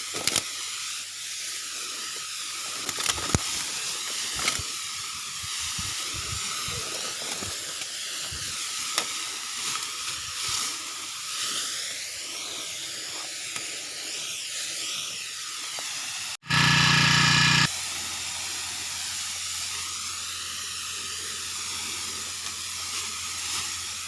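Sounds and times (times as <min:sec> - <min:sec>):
sprayer nozzle hissing: 0:16.4 - 0:17.7
faint steady whine: 0:16.5 - 0:17.7.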